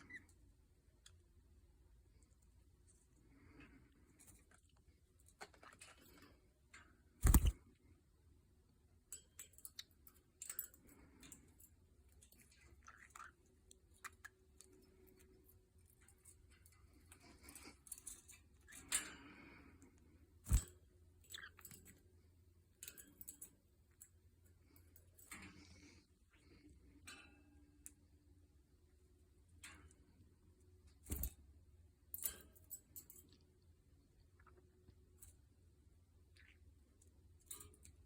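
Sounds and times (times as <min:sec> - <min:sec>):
bird pecking and chewing: 0:09.3 - 0:18.3.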